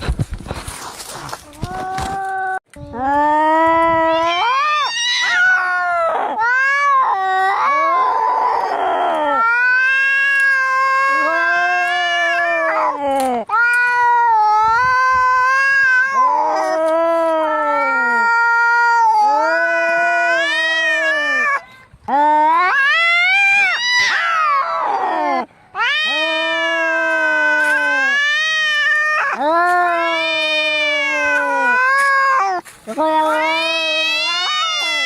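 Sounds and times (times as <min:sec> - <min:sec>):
cats yowling: 0:04.1 - 0:21.6, 0:22.2 - 0:35.0.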